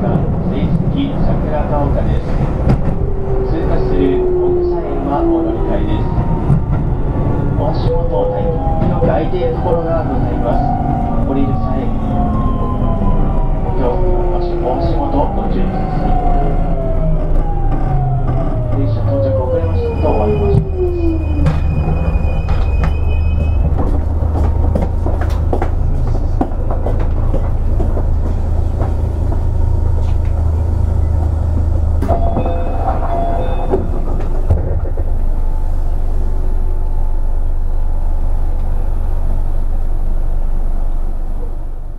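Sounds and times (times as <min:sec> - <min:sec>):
wheels rumbling on rail: 0:00.0 - 0:41.9.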